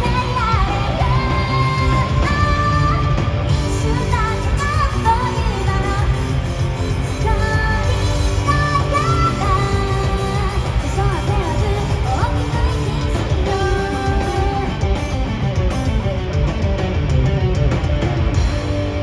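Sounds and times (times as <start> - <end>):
rock band playing live: 0.0 - 19.0.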